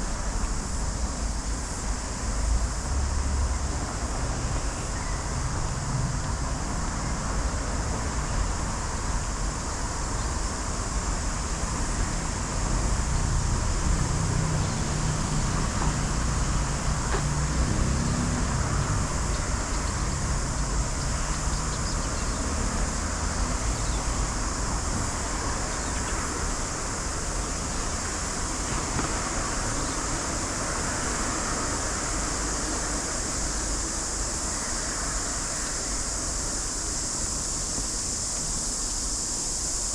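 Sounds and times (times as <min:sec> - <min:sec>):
high hiss: 0:00.0 - 0:39.9
traffic rumble: 0:00.0 - 0:39.9.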